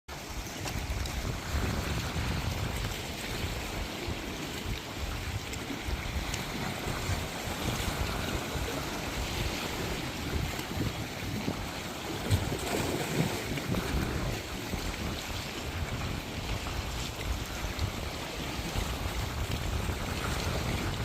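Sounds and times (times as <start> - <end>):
sea waves washing onto shore: 0.1 - 21.0
gusty low rumble: 0.4 - 4.0.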